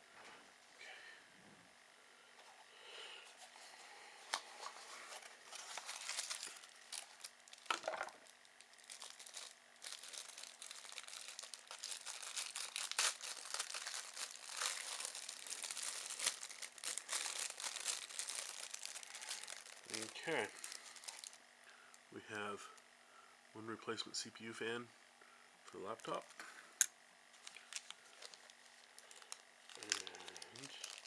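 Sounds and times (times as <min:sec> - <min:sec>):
packaging crinkling: 0:04.3 - 0:21.4, 0:27.3 - 0:31.0
packaging tearing: 0:04.3 - 0:21.4, 0:27.4 - 0:31.0.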